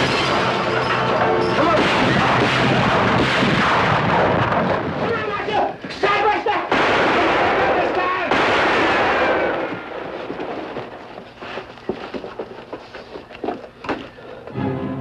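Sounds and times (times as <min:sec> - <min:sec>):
music: 0:00.0 - 0:01.8, 0:14.5 - 0:15.0
gunshot with echo: 0:01.6 - 0:05.0, 0:06.7 - 0:09.9.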